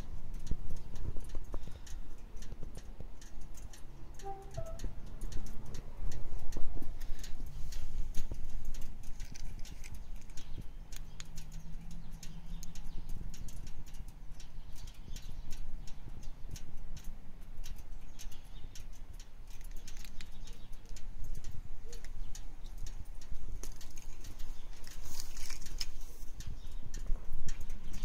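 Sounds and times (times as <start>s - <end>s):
motorcycle engine idling: 9.9s - 28.0s.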